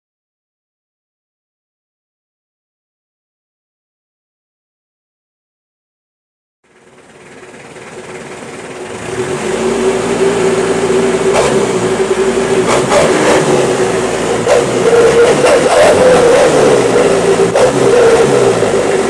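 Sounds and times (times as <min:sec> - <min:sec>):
engine blips: 0:06.6 - 0:19.0
engine running: 0:06.6 - 0:19.0
exhaust whistling tone: 0:07.3 - 0:19.0.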